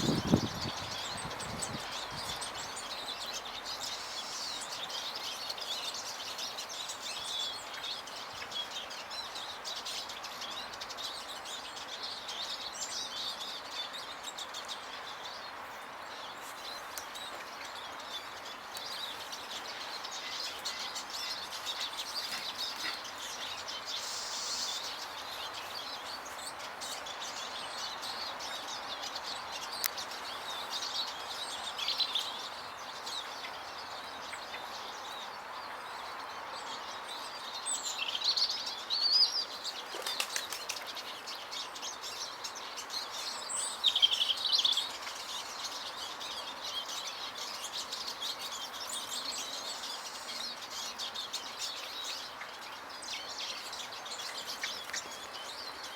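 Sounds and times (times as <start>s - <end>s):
background hiss: 0.0s - 55.9s
songbirds chirping: 0.0s - 55.9s
wing flutters: 39.8s - 41.0s.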